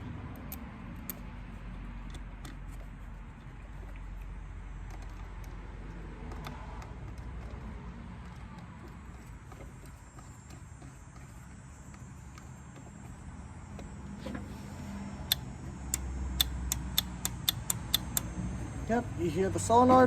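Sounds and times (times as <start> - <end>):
clicks and taps of small parts: 15.3 - 18.3.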